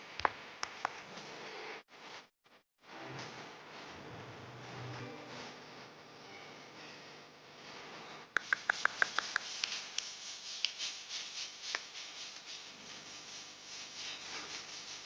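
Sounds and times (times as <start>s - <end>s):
steady hiss: 8.4s - 15.0s.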